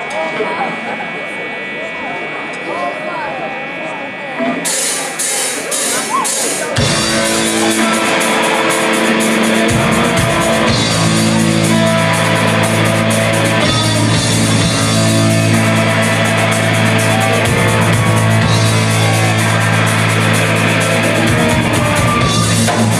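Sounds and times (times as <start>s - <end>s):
heavy metal band playing: 4.6s - 22.9s.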